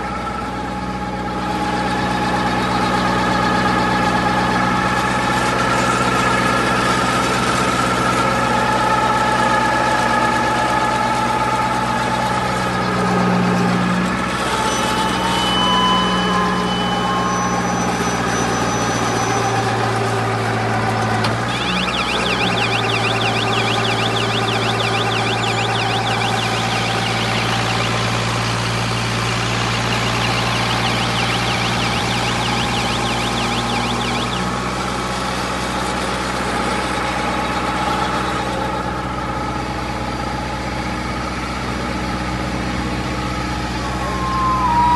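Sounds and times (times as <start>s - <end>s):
baling machine drone: 0.0s - 44.9s
high warbling whine: 10.8s - 39.2s, 43.6s - 44.9s.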